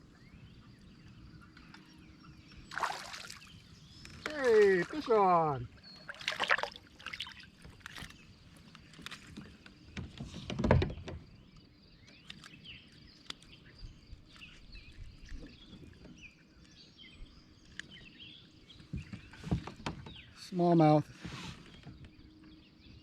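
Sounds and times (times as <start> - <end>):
clicks and knocks on kayak: 7.6 - 13.5, 18.8 - 20.3.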